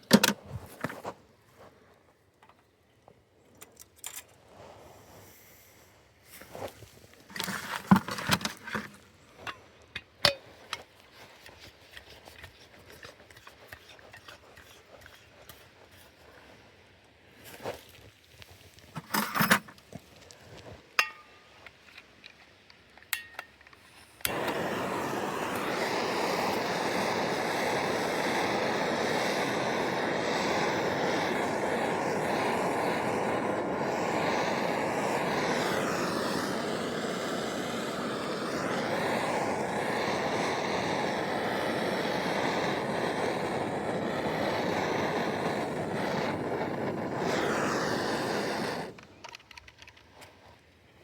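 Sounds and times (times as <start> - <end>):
air hissing through valve: 24.0 - 49.1.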